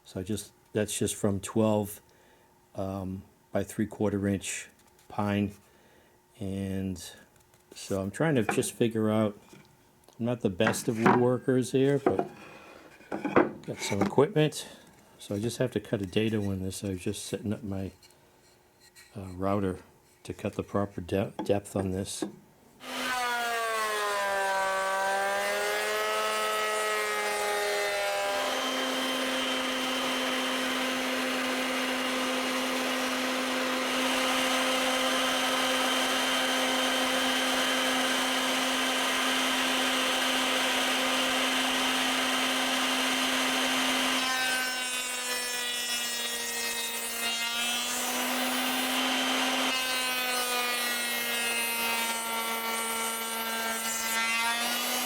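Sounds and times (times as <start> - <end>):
electric router cutting wood: 22.2 - 55.0.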